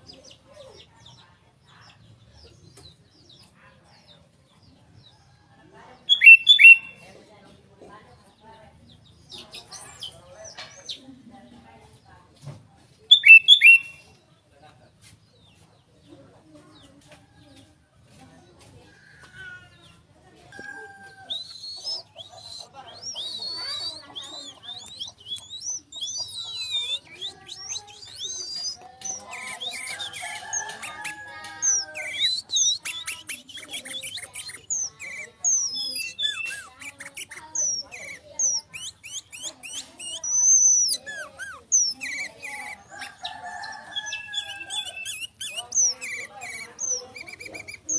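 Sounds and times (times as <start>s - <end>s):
faint background sounds: 0.0s - 47.9s
bird whistling: 6.1s - 7.0s, 13.1s - 14.1s, 20.7s - 47.9s.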